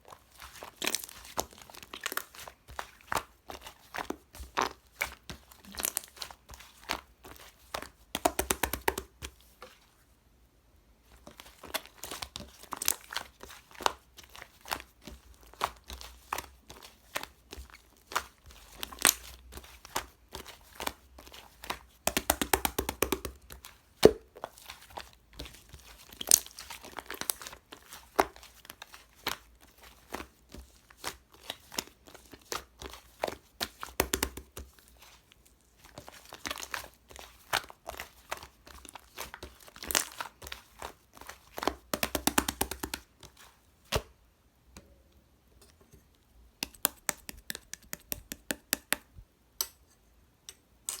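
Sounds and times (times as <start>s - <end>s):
slime crackling and popping: 0.4s - 6.2s, 7.8s - 9.2s, 11.4s - 30.3s, 35.9s - 43.1s.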